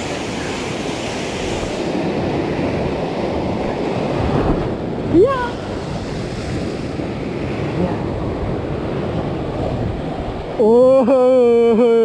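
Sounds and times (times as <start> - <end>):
wind buffeting microphone: 0.0 - 10.8
surf on rocky shore: 0.0 - 12.0.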